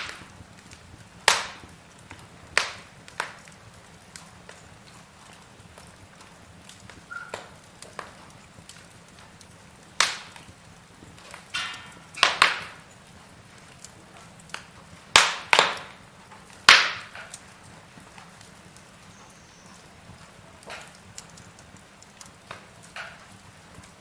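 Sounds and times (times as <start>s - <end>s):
fire hiss: 0.0s - 24.0s
sharp pops and snaps: 0.0s - 24.0s
wood fire crackling: 0.0s - 24.0s.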